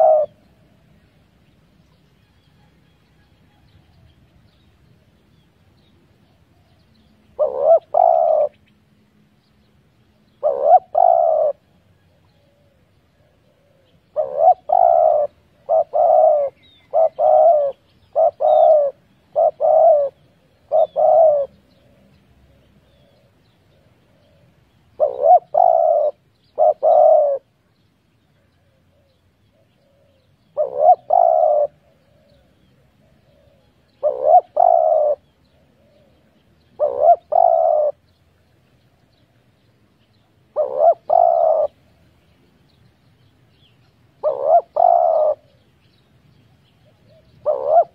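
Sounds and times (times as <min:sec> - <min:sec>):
dove cooing: 0:00.0 - 0:00.8, 0:06.5 - 0:08.7, 0:10.2 - 0:27.6, 0:28.3 - 0:38.2, 0:40.5 - 0:42.1, 0:44.1 - 0:45.7, 0:46.8 - 0:47.9.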